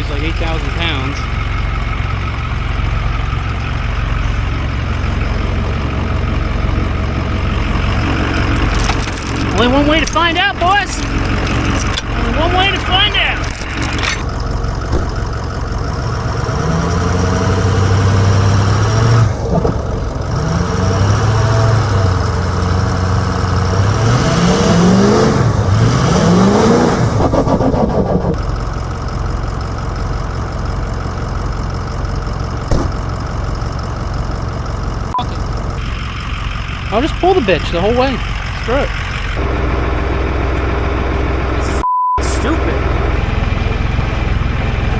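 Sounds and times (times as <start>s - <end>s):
diesel engine revving under load: 0.0s - 44.9s
single knock: 32.7s - 33.0s.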